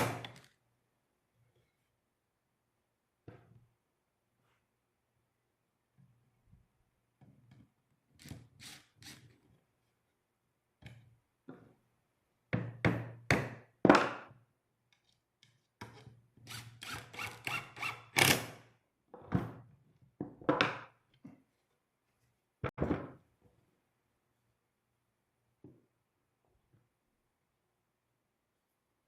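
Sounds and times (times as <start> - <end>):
wooden knocks and thunks: 22.6 - 23.2.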